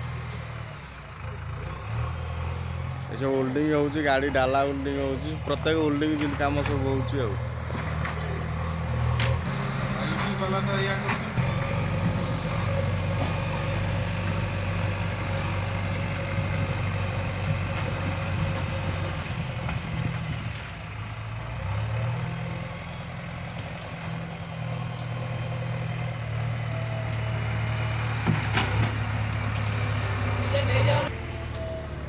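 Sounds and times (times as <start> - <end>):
heavy diesel engine revving: 0.0 - 32.0.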